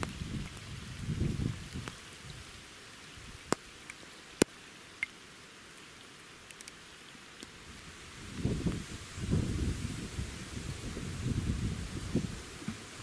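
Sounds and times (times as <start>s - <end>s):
raindrops ticking close by: 0.0s - 9.7s
light rain hiss: 0.0s - 13.0s.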